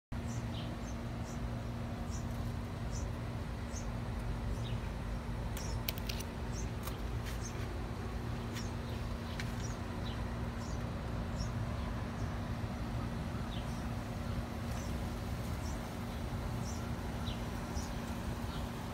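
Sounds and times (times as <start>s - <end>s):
steady low hum: 0.1s - 18.9s
small bird chirping: 0.2s - 4.9s, 5.5s - 7.7s.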